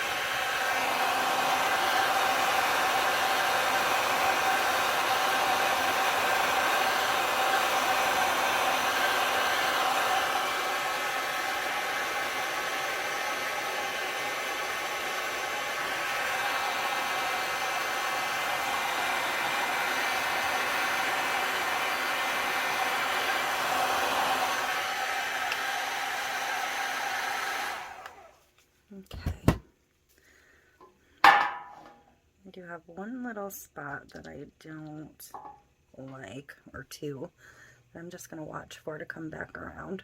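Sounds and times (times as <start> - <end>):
heat gun blowing: 0.0 - 28.4.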